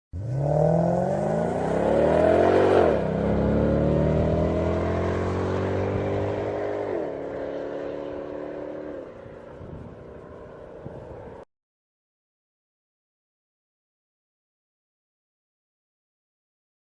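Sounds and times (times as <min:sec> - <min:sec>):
car engine accelerating: 0:00.1 - 0:11.5.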